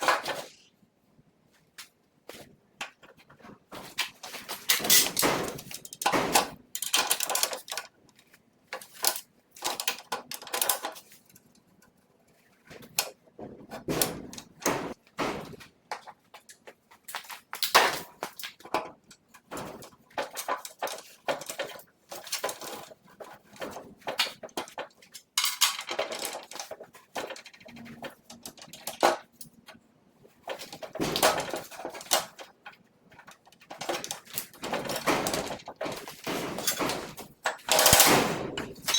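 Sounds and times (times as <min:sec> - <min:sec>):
metal tools clinking and clanking: 0:04.1 - 0:07.9, 0:24.4 - 0:29.8, 0:33.4 - 0:38.9.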